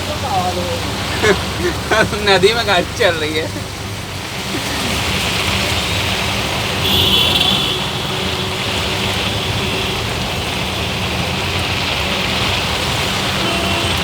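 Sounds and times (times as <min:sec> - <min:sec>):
heavy rain falling: 0:00.0 - 0:14.0
vehicle engines on wet road: 0:00.0 - 0:14.0
high-pitched tone: 0:06.8 - 0:08.9.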